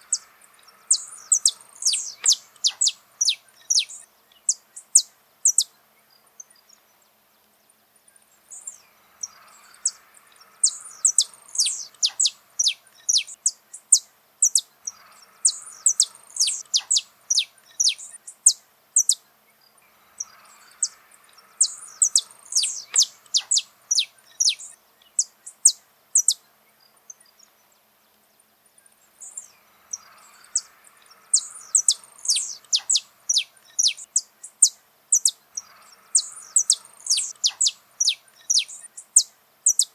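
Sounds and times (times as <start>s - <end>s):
finch singing high notes: 0.0s - 4.0s, 8.7s - 13.4s, 19.9s - 25.3s, 29.2s - 34.3s, 35.2s - 39.1s.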